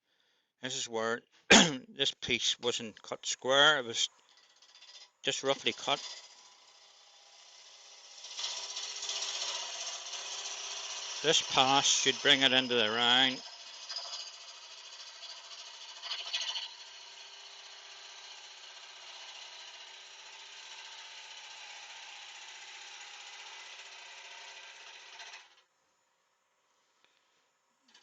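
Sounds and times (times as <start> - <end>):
wood lathe gouge cutting wood: 4.4 - 25.6.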